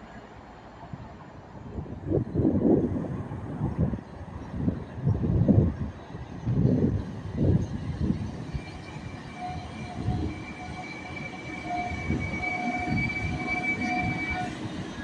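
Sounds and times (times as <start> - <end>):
train wheels rumbling on rails: 0.8 - 15.0
high-pitched wheel squeal: 8.5 - 15.0.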